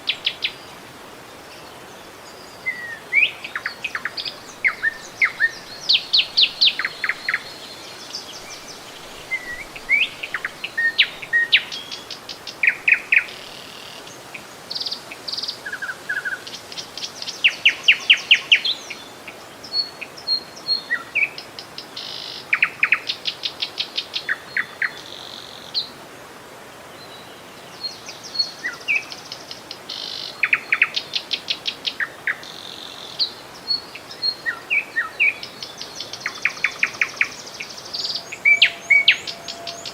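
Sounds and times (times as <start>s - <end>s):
faint steady hiss: 0.0s - 39.9s
songbirds chirping and trilling: 26.8s - 39.9s.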